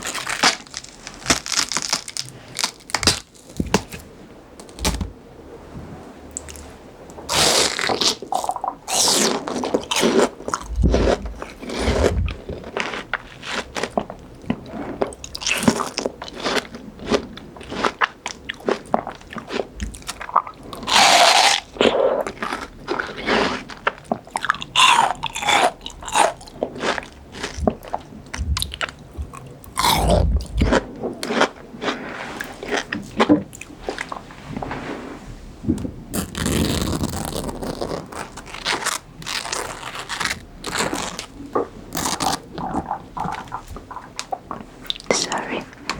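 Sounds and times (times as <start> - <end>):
crunchy fruit chewing: 0.0 - 4.1, 7.3 - 34.3, 36.2 - 45.9
wet mouth sounds: 7.3 - 16.6, 19.0 - 34.3, 36.2 - 45.9.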